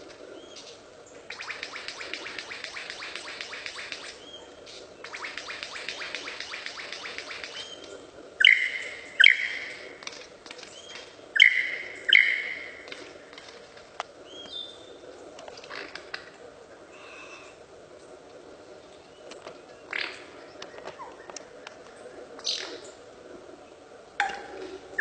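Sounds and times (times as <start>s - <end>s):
bird calling: 0.0s - 16.3s.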